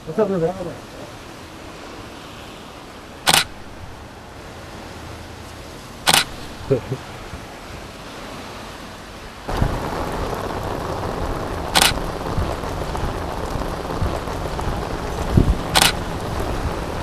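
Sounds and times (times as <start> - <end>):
rain hissing: 3.0 - 4.2, 6.1 - 6.9, 9.5 - 17.0
camera shutter click: 3.3 - 3.6, 6.1 - 6.4.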